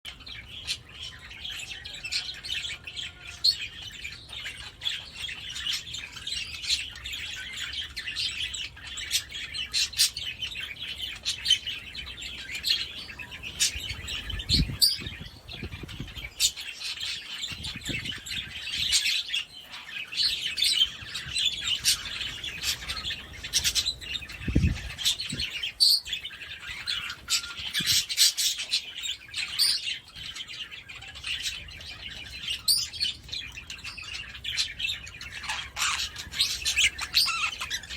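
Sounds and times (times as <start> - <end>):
budgerigar chattering and warbling: 33.8 - 37.9.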